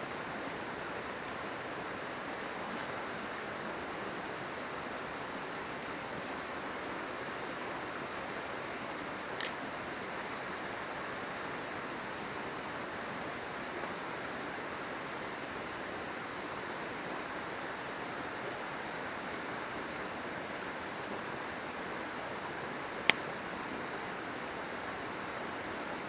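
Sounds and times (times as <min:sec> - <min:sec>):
river water flowing: 0:00.0 - 0:26.0.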